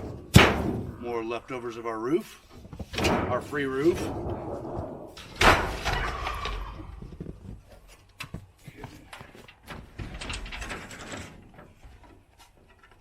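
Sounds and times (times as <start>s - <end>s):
rattling: 9.5s - 13.0s.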